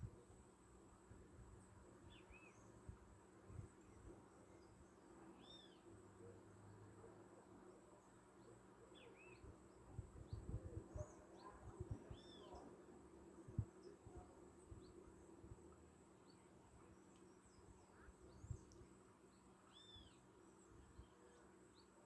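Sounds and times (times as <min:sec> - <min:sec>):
faint bird chirps: 0:02.0 - 0:07.1, 0:07.9 - 0:12.8, 0:16.2 - 0:22.0.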